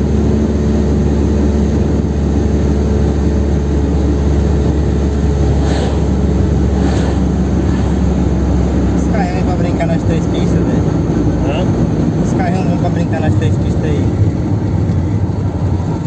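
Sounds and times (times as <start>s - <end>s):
road noise: 0.0s - 16.0s
car engine drone in cabin: 0.1s - 16.0s
wind noise: 0.5s - 10.3s.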